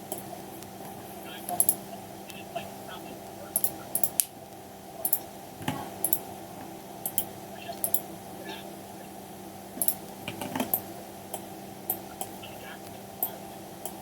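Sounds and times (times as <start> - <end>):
low electrical hum: 0.0 - 14.0
computer mouse clicks: 1.5 - 1.8, 3.6 - 4.3, 5.0 - 6.2, 7.0 - 8.0, 9.8 - 12.4
keyboard clicks: 1.5 - 2.4, 3.5 - 4.3, 5.0 - 5.3, 7.0 - 8.0, 9.8 - 14.0.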